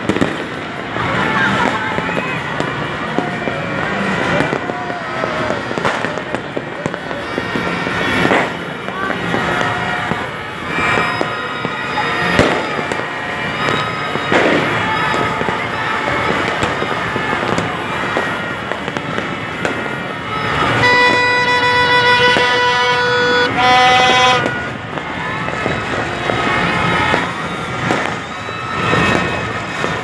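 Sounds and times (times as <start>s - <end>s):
fireworks crackling and popping: 0.0s - 30.0s
horn note: 20.8s - 24.7s.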